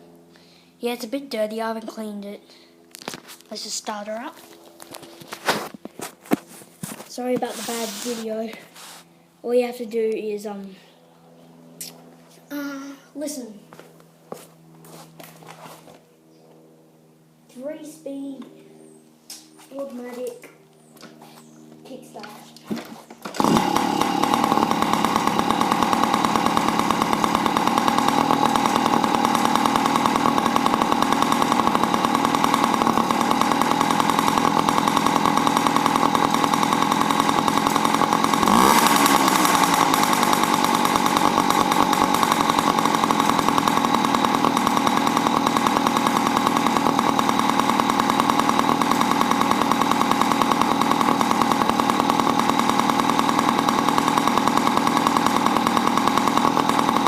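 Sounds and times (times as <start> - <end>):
small two-stroke engine running: 4.4 - 9.1, 21.8 - 57.0.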